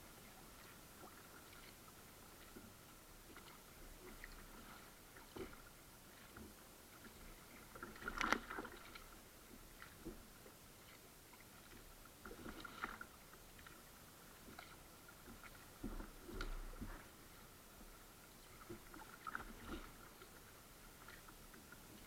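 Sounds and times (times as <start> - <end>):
kayak paddle splashing water: 3.3 - 10.3, 10.9 - 13.8, 18.6 - 22.0.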